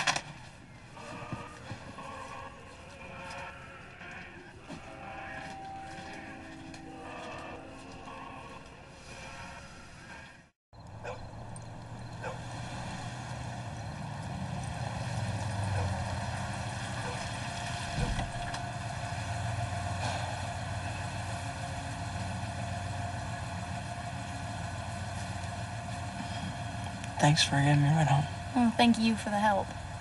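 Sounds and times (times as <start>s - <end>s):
engine droning: 0.0s - 30.0s.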